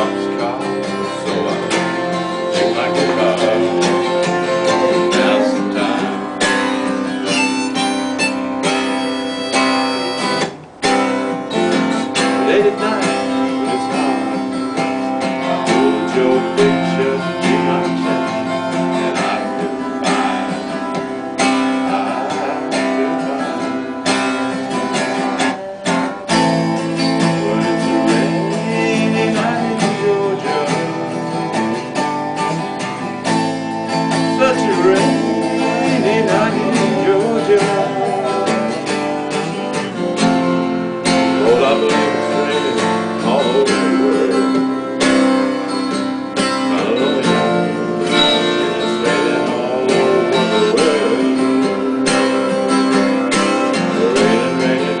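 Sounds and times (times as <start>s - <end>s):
man singing a soul ballad: 0.0s - 6.4s, 12.2s - 24.0s, 27.2s - 31.5s, 34.4s - 39.0s, 41.3s - 44.8s, 46.6s - 52.7s, 53.4s - 55.0s
acoustic guitar strumming: 0.0s - 55.0s.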